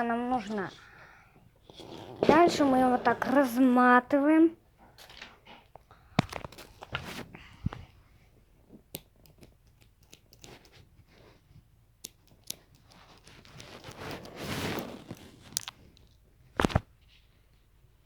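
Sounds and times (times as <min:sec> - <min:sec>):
string rustle: 0:12.9 - 0:16.0.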